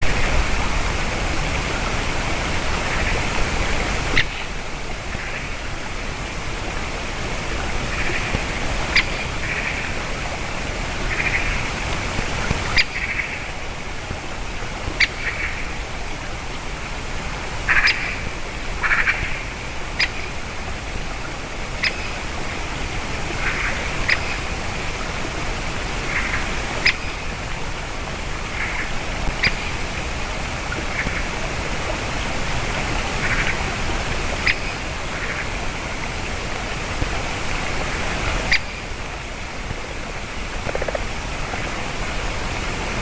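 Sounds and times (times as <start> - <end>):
woodpecker sharp calls: 40.6 - 41.1.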